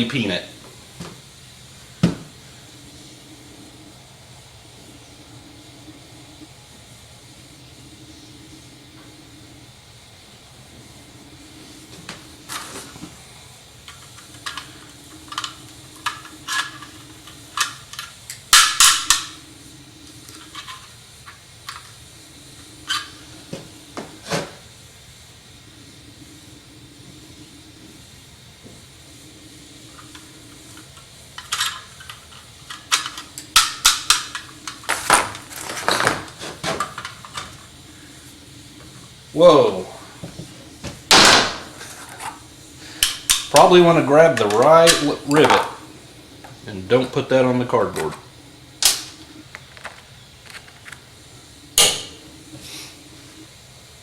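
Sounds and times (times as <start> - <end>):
torch hissing: 0.0 - 54.0.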